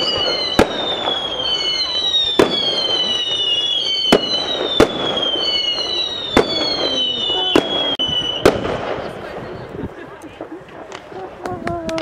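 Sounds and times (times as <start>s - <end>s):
firework whistles: 0.0s - 9.6s
firework bangs: 0.0s - 12.0s.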